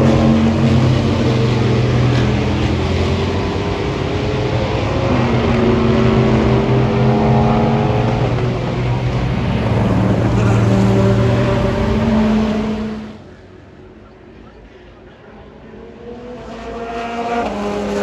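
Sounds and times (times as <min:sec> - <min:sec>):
racing car engines: 0:00.0 - 0:18.0.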